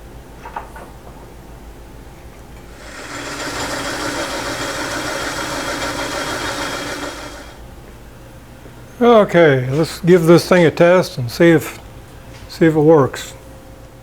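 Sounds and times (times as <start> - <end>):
metal lathe whining: 2.7 - 7.6.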